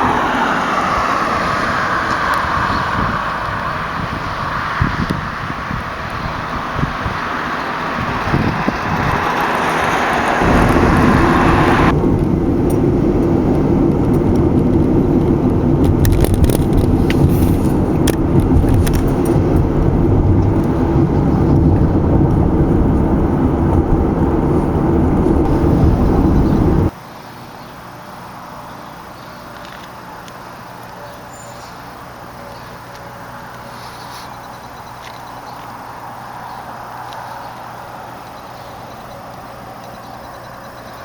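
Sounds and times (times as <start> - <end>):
road traffic noise: 0.0 - 41.0.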